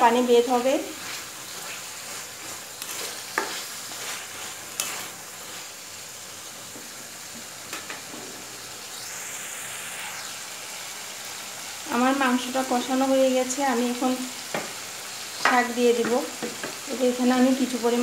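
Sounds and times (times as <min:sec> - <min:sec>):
spatula stirring and scraping pan: 0:00.0 - 0:08.7, 0:10.1 - 0:18.0
chicken sizzling in a pan: 0:00.0 - 0:18.0
spatula clacking on pan: 0:02.8 - 0:03.6.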